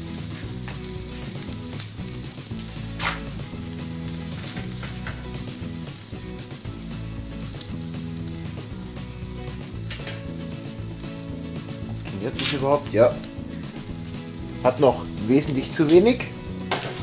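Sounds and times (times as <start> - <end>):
fire crackling pops: 0.0 - 17.0
meat sizzling on a grill: 0.0 - 17.0.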